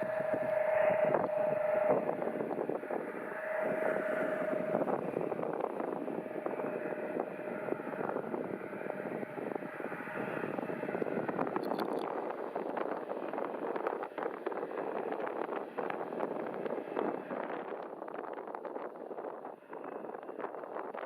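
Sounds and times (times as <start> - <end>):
jet engine whine: 0.0 - 21.0
wind buffeting microphone: 0.0 - 21.0.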